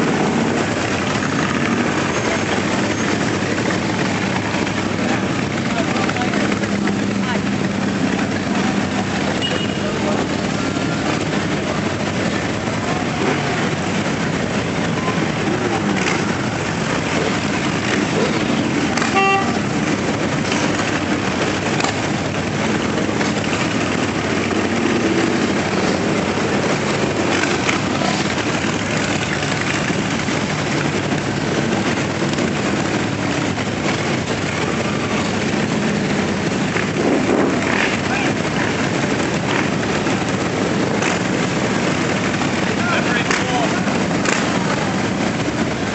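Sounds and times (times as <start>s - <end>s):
motorcycles riding past: 0.0s - 45.9s
motorcycle horn toot: 9.4s - 9.8s, 19.0s - 19.7s.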